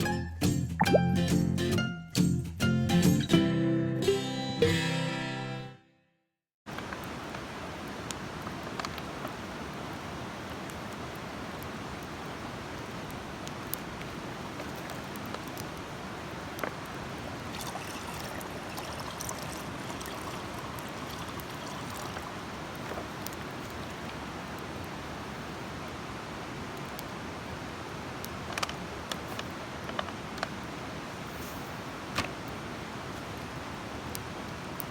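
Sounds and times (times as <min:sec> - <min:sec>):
campfire crackling and popping: 0:06.7 - 0:34.9
fire rushing hiss: 0:28.3 - 0:34.9.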